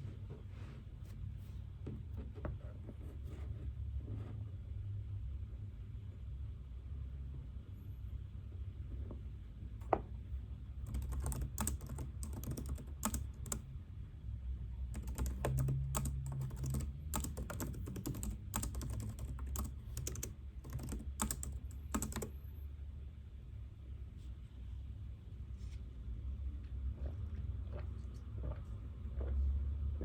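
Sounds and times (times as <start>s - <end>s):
steady low hum: 0.0s - 25.6s
computer keyboard typing: 10.8s - 13.7s, 14.9s - 22.4s.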